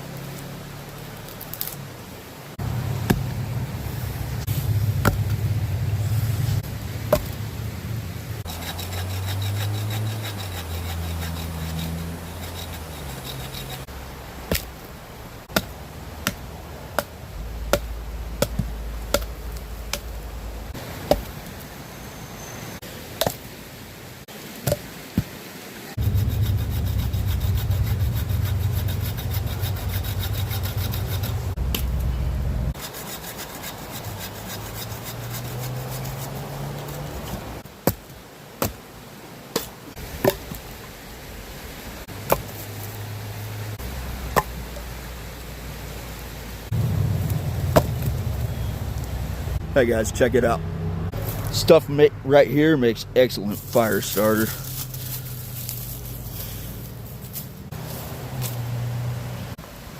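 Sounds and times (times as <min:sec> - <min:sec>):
hand sawing firewood: 0:08.4 - 0:13.9, 0:26.0 - 0:31.8, 0:32.7 - 0:38.0, 0:53.4 - 0:58.6
sharp wooden knocks: 0:47.7 - 0:48.1.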